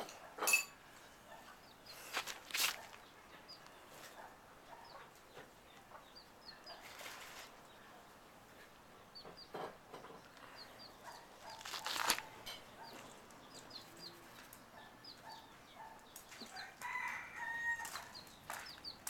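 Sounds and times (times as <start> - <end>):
chickens chirping: 0.0 - 19.0
wings fluttering: 11.4 - 12.4.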